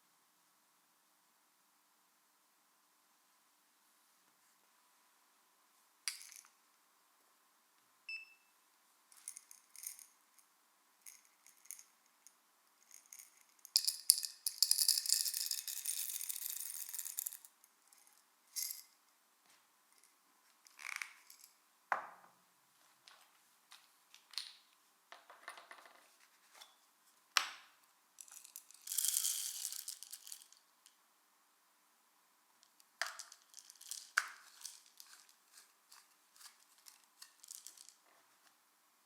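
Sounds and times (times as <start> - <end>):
coffee beans rattling in container: 9.2 - 10.1, 12.8 - 17.5, 18.6 - 18.9, 28.2 - 30.6, 33.0 - 38.0.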